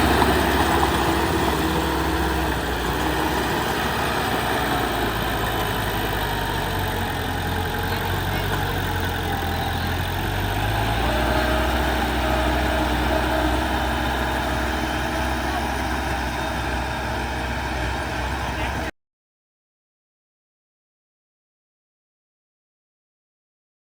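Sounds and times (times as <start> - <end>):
heavy diesel engine at low revs: 0.0 - 18.9.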